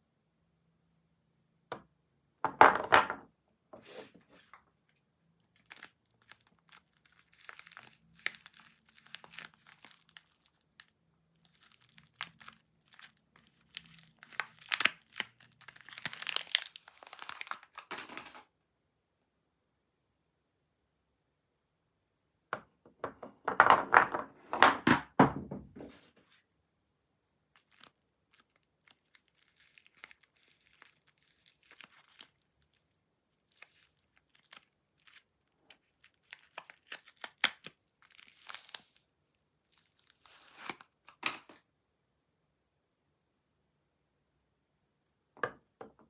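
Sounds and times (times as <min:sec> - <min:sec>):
wrapper tearing and crinkling: 0:05.4 - 0:18.4, 0:27.6 - 0:32.9, 0:33.5 - 0:40.9.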